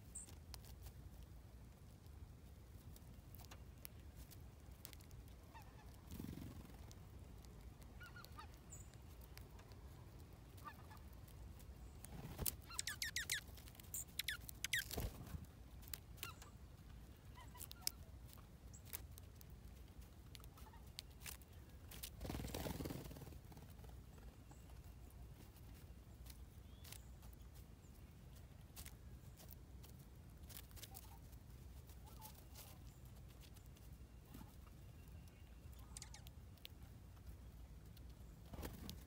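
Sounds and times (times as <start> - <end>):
faint bird calls: 7.9 - 9.0, 11.8 - 15.1, 34.1 - 36.3.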